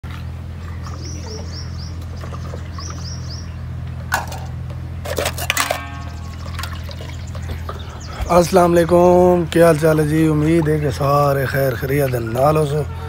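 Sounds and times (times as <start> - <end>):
steady low hum: 0.0 - 13.0
small bird chirping: 0.6 - 3.7, 5.9 - 8.3.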